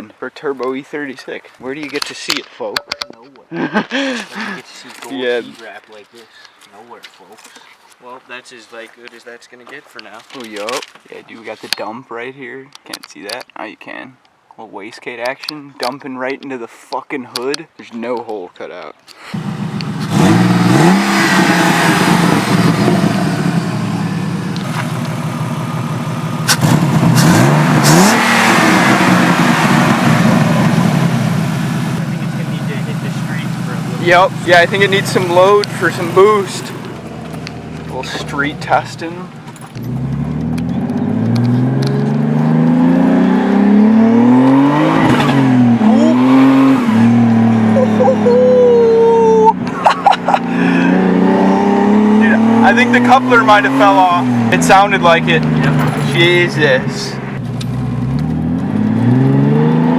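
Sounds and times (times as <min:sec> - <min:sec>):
car engine revving: 0:19.2 - 0:39.1, 0:39.8 - 0:48.5, 0:50.1 - 0:59.9.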